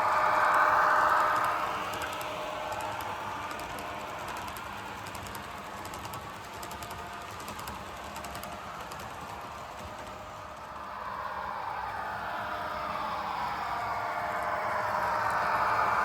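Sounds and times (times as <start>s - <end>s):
model train humming: 0.0s - 16.0s
wheels clicking over rail joints: 0.4s - 10.8s.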